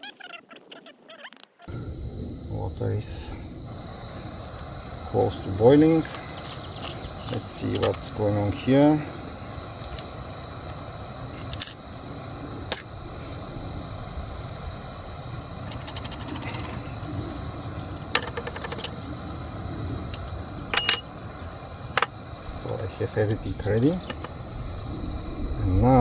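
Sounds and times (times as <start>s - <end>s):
water heating rush: 1.8s - 26.0s
small parts clicking and rattling: 18.1s - 19.0s.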